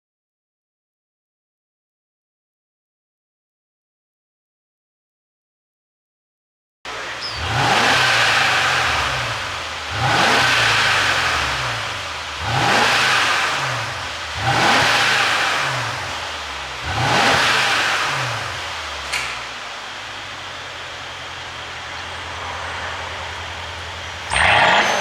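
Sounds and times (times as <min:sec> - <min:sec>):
car engine revving: 0:06.9 - 0:25.0.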